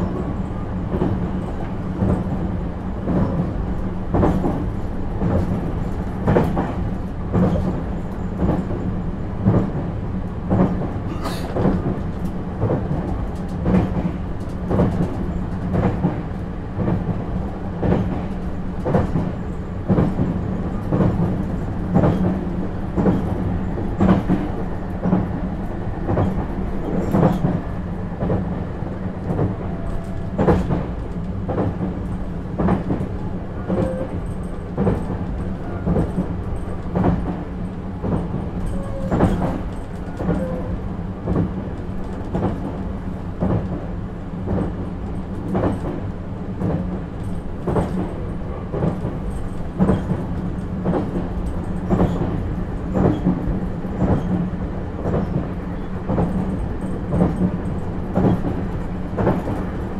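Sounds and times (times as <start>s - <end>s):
train interior hum: 0.0s - 59.9s
wheels clacking over rail joints: 29.2s - 43.8s.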